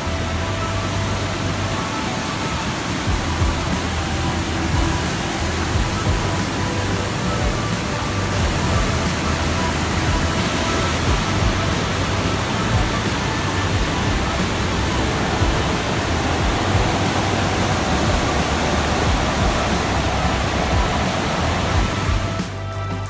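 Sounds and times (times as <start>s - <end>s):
waterfall roaring: 0.0s - 22.9s.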